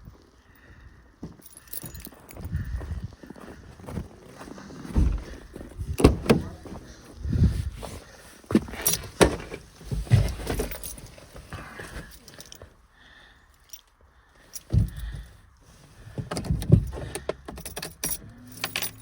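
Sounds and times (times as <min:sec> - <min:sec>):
keys jingling: 0:01.3 - 0:03.2, 0:04.9 - 0:06.8, 0:08.6 - 0:12.7, 0:13.6 - 0:15.3, 0:16.3 - 0:19.0
handling knocks and clatter: 0:04.8 - 0:07.0, 0:07.7 - 0:12.7, 0:14.5 - 0:15.4, 0:16.0 - 0:19.0.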